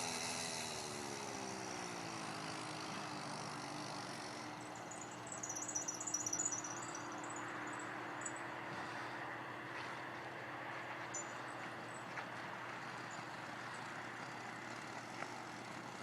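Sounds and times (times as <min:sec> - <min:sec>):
small motorbike engine running: 0:00.0 - 0:16.0
high chirping: 0:04.6 - 0:08.5, 0:11.1 - 0:11.6.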